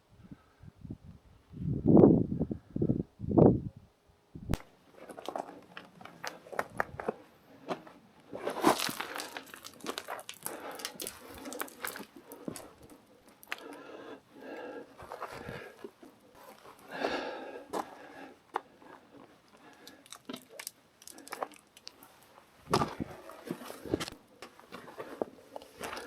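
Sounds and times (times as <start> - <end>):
footsteps on loose rock: 4.6 - 13.7, 22.6 - 26.0
stones clicking: 8.6 - 13.8, 19.5 - 22.0.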